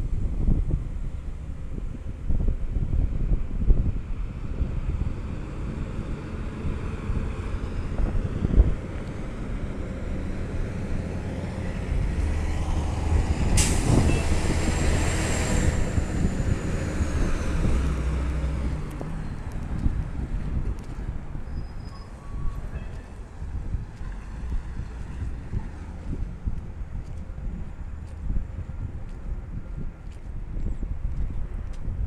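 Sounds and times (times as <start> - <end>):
diesel engine droning: 4.3 - 29.2
air brakes hissing: 13.5 - 14.4.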